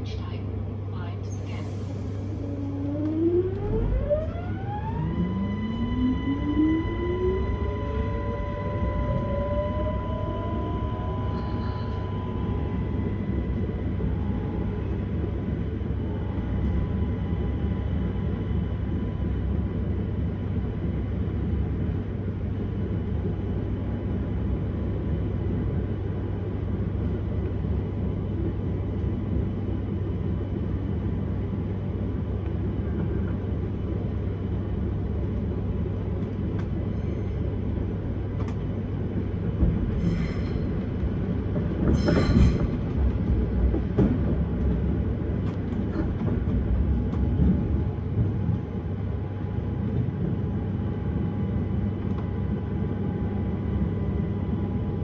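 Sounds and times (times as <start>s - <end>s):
faint steady whine: 0.0s - 41.5s
train wheels rumbling on rail: 0.0s - 55.0s.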